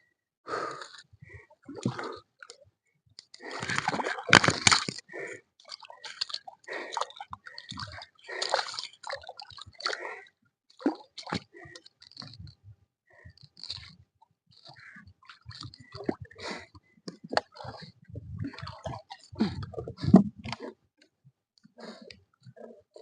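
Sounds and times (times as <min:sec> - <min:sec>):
water splashing and sloshing: 0:01.3 - 0:02.5, 0:03.2 - 0:12.6, 0:13.2 - 0:20.8.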